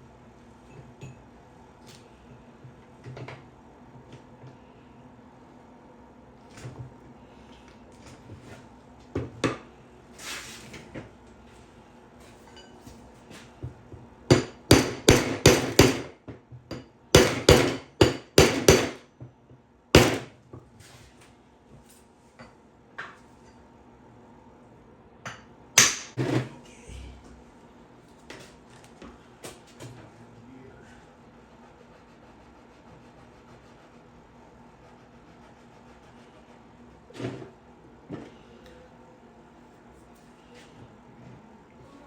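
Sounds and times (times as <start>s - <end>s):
hammer striking centre punch: 17.2s - 19.0s.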